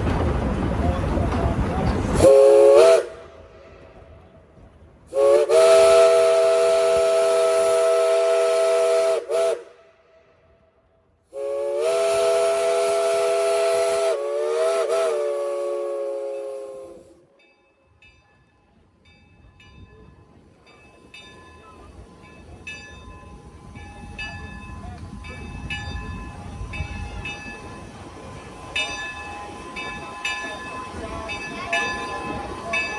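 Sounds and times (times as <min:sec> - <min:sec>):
steam whistle blasts: 0:02.2 - 0:03.4, 0:05.1 - 0:10.0, 0:11.3 - 0:17.2.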